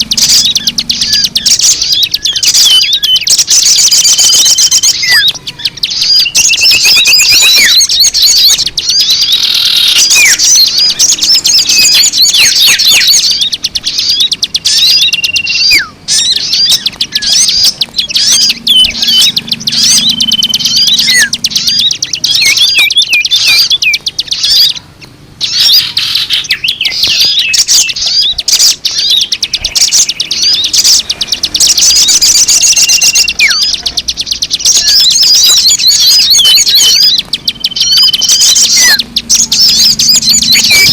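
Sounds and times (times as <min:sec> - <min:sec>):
small birds twittering: 0:00.0 - 0:40.9.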